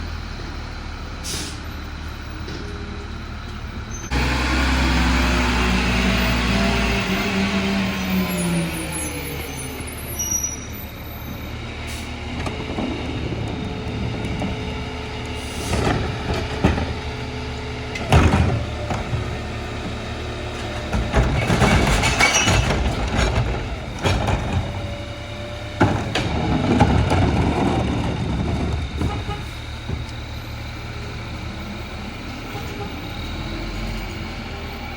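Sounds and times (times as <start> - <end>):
garbage truck engine running: 0.0 - 34.9
rear loader clanks and bangs: 11.8 - 31.6.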